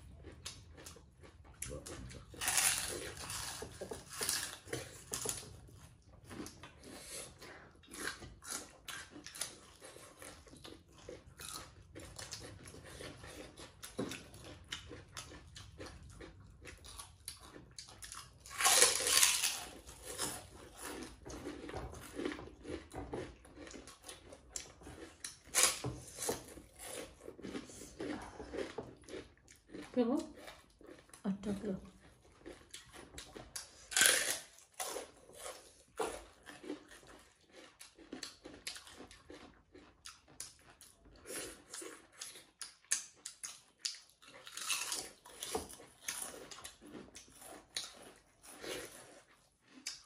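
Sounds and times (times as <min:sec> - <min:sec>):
chewing and crunching: 0:00.0 - 0:50.0.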